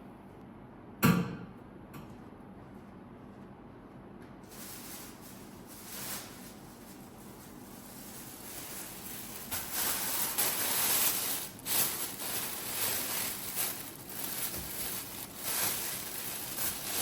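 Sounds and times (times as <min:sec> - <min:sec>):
rustling and handling noises: 0:04.4 - 0:17.0.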